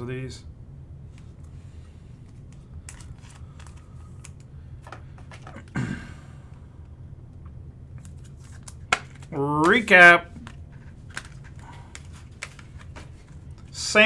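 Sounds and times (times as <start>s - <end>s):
trading cards clicking and tapping: 8.0s - 13.8s.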